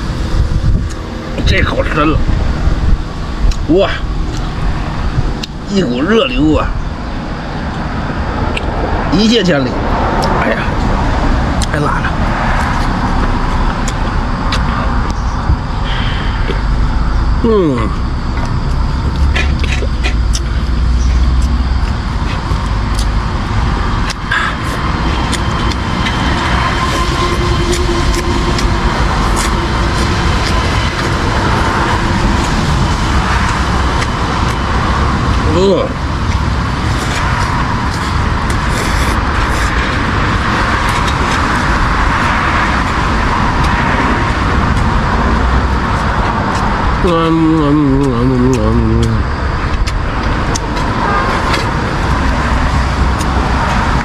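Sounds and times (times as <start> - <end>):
low vehicle rumble: 0.0 - 54.0
steady traffic noise: 0.0 - 54.0
wavering pitched sound: 13.0 - 38.4.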